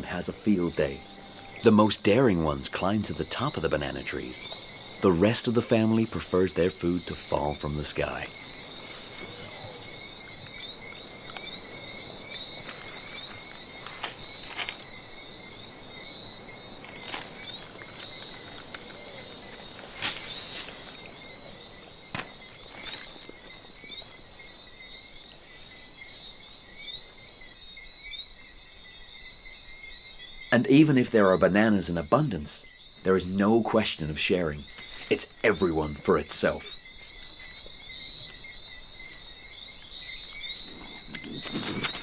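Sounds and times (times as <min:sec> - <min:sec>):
insects chirping: 0:00.0 - 0:42.0
rustles and snaps in plants: 0:12.6 - 0:15.0, 0:16.8 - 0:21.1, 0:22.1 - 0:23.4, 0:40.7 - 0:42.0.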